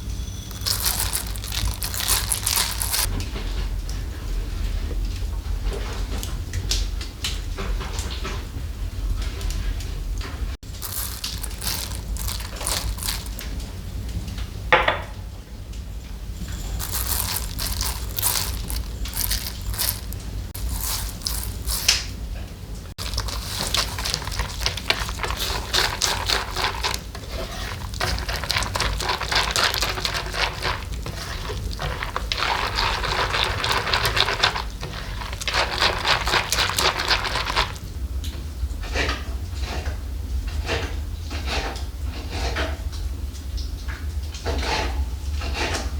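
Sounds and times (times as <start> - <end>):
kitchen scraping and rustling: 0.4 - 3.3, 10.6 - 13.7, 16.4 - 22.2, 22.9 - 38.0.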